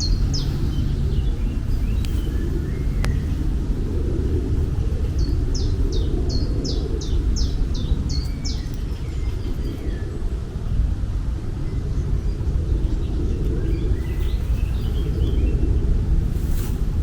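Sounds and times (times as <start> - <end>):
bird chirping: 0.0 - 3.5, 5.1 - 10.2
low outdoor rumble: 0.0 - 17.0.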